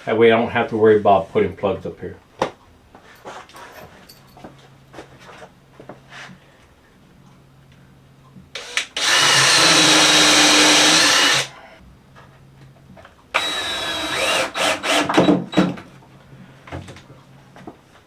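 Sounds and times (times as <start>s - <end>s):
power drill driving screws: 8.6s - 11.5s, 13.4s - 15.7s.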